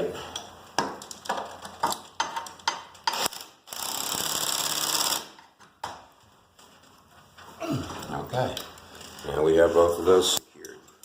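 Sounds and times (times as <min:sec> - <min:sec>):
sharp metal clicks: 0:00.3 - 0:05.6.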